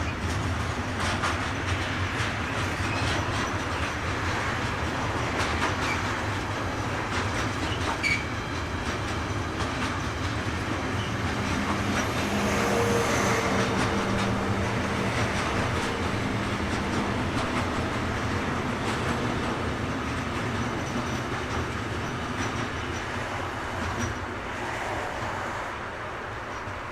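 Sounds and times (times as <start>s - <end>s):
train wheels clicking over rails: 0.0s - 26.9s
wheel squeal: 7.6s - 8.4s.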